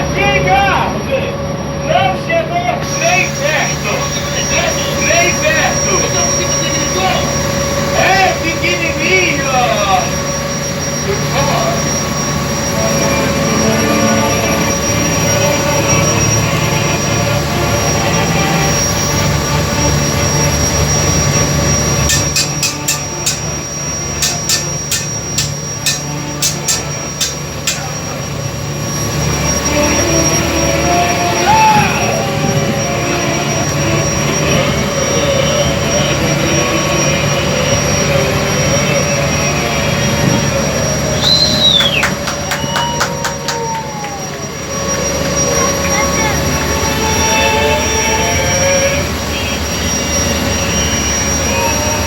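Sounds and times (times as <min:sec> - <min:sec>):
boat engine drone: 0:00.0 - 0:52.0
sharp evenly spaced clicks: 0:22.0 - 0:28.2.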